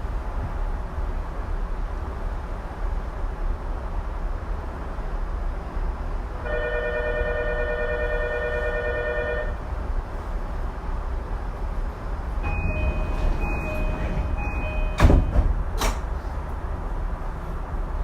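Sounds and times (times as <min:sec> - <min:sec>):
train wheels rumbling on rail: 0:00.0 - 0:06.8, 0:09.4 - 0:18.0.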